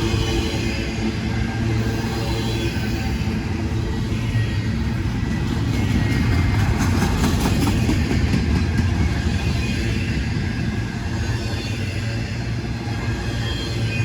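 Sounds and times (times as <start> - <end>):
freight train rumbling: 0.0 - 14.0
train clicks: 4.6 - 11.6.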